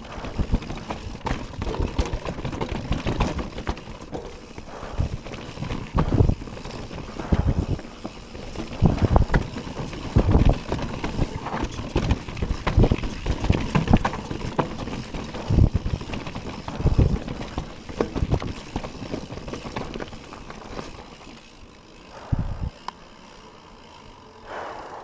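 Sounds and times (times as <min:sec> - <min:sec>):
heavy thuds of bike on bumps: 0:00.0 - 0:23.6
bike frame and chain rattling: 0:00.0 - 0:25.0.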